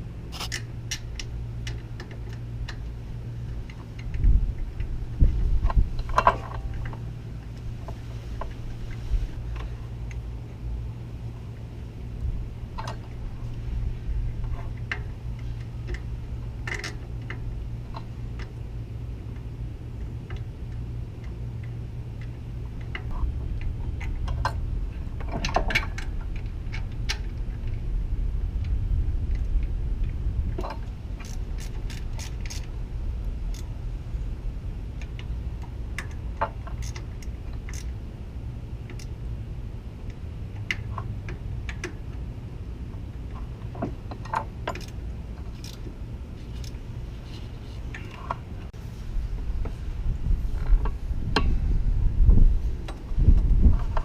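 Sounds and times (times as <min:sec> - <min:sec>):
steady low hum: 0:00.0 - 0:54.0
hand tools and metal clinking: 0:06.0 - 0:07.1, 0:43.3 - 0:48.5
ratchet clicks: 0:14.5 - 0:18.6, 0:30.6 - 0:32.8, 0:33.4 - 0:33.7, 0:35.0 - 0:38.0, 0:38.8 - 0:39.2, 0:44.1 - 0:45.9.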